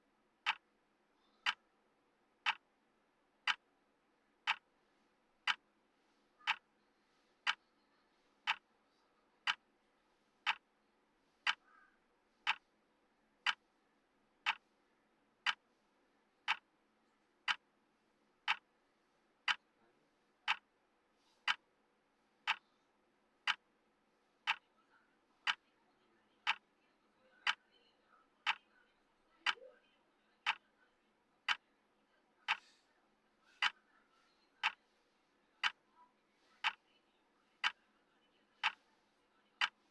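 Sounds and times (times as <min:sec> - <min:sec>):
timer ticking: 0:00.4 - 0:00.7, 0:02.4 - 0:02.7, 0:03.4 - 0:03.7, 0:04.4 - 0:04.8, 0:05.4 - 0:05.7, 0:06.4 - 0:06.7, 0:07.4 - 0:07.6, 0:08.4 - 0:08.7, 0:09.4 - 0:09.7, 0:10.4 - 0:10.7, 0:11.4 - 0:11.6, 0:12.4 - 0:12.7, 0:13.4 - 0:13.6, 0:14.4 - 0:14.7, 0:15.4 - 0:15.6, 0:16.4 - 0:16.7, 0:17.4 - 0:17.7, 0:18.4 - 0:18.7, 0:19.4 - 0:19.7, 0:20.4 - 0:20.8, 0:21.4 - 0:21.7, 0:22.4 - 0:22.7, 0:23.4 - 0:23.7, 0:24.4 - 0:24.7, 0:25.4 - 0:25.6, 0:26.4 - 0:26.7, 0:27.4 - 0:27.6, 0:28.4 - 0:28.6, 0:30.4 - 0:30.7, 0:31.4 - 0:31.6, 0:32.5 - 0:32.8, 0:34.6 - 0:34.8, 0:35.6 - 0:35.8, 0:36.6 - 0:36.8, 0:37.6 - 0:37.8, 0:38.6 - 0:38.9, 0:39.6 - 0:39.9.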